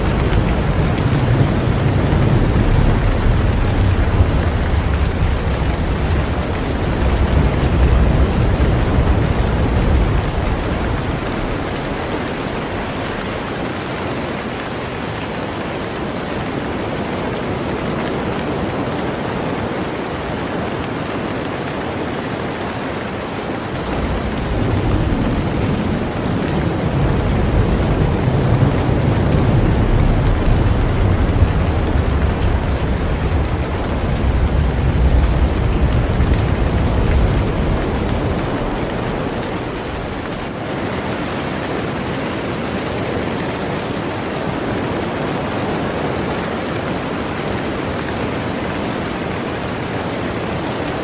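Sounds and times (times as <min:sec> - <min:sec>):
deep low rumble: 0:00.0 - 0:13.2, 0:23.8 - 0:40.5
heavy rain on a boat: 0:00.0 - 0:51.0.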